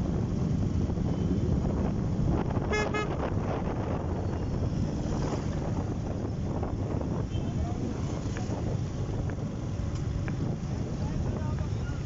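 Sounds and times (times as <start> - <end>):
engine rumble: 0.0 - 12.0
wind noise: 0.0 - 12.0.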